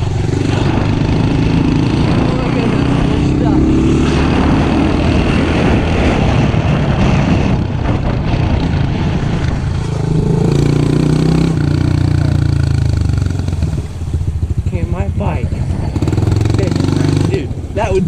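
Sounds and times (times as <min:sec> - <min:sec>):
small off-road engine revving: 0:00.0 - 0:07.5, 0:09.9 - 0:13.8, 0:15.6 - 0:18.0
wind and ride noise: 0:00.0 - 0:18.0.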